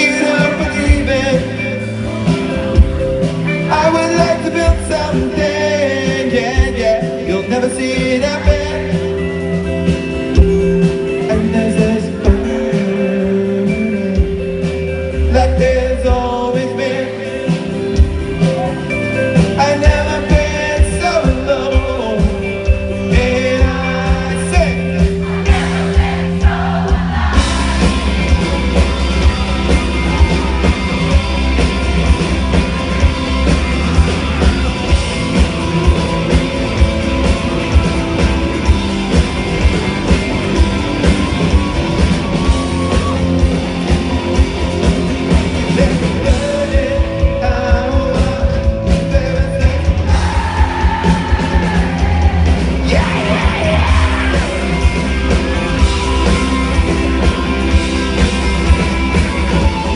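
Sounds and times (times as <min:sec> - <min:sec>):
steady drum beat: 0:00.0 - 0:07.3, 0:19.4 - 0:59.9
live rock band playing: 0:00.0 - 0:59.9
voices singing and shouting: 0:23.4 - 0:31.0, 0:50.0 - 0:55.7.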